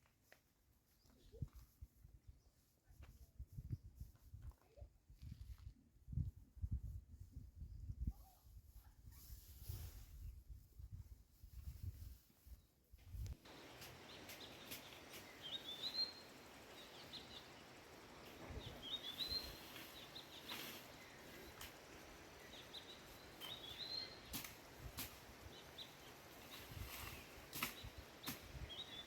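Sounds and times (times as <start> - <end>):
steady outdoor hiss: 13.3 - 29.0
songbird singing: 13.4 - 29.0.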